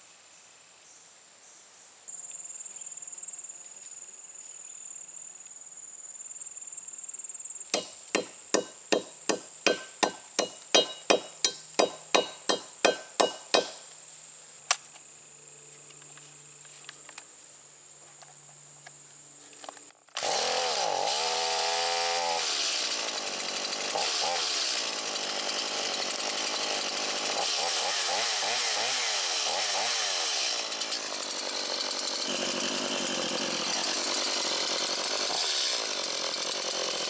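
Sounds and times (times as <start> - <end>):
sharp ringing knocks: 7.8 - 13.9.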